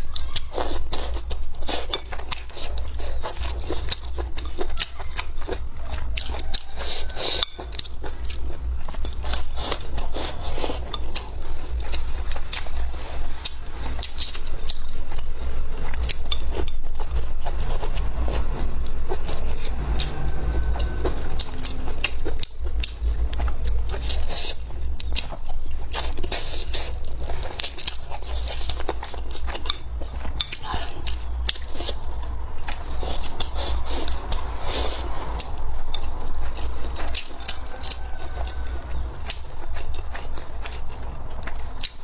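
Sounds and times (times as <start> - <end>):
chewing and biting crackles: 0.0 - 42.0
chopsticks scraping a bowl: 0.4 - 14.9
low hum: 7.4 - 41.8.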